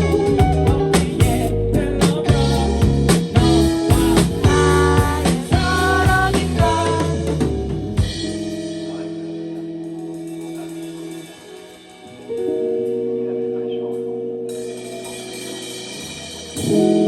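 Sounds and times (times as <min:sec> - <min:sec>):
drum kit hits: 0:00.0 - 0:11.9
band chords ringing out: 0:00.0 - 0:17.0.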